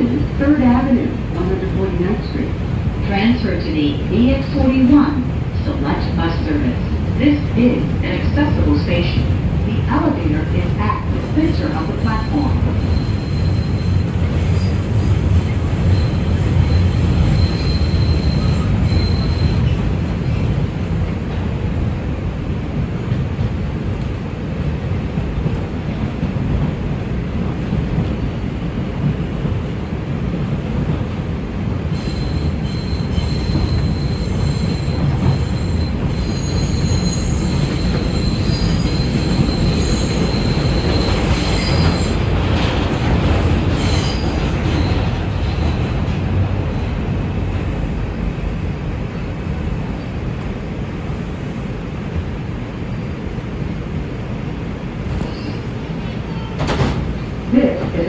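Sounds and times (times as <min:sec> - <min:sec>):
train wheels rumbling on rail: 0:00.0 - 0:58.0
high-pitched wheel squeal: 0:12.3 - 0:19.8, 0:32.0 - 0:42.1.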